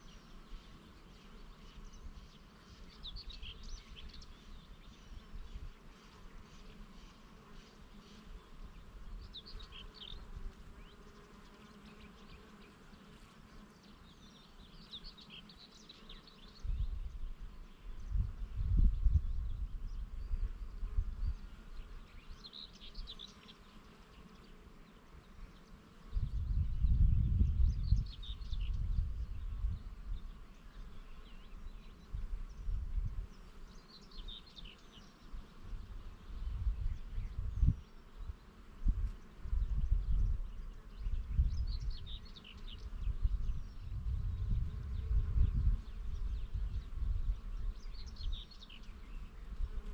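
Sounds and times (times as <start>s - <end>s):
small birds chirping: 0.0s - 49.9s
wind rumble on microphone: 16.6s - 21.5s, 26.1s - 30.9s, 31.5s - 33.5s, 35.6s - 49.9s.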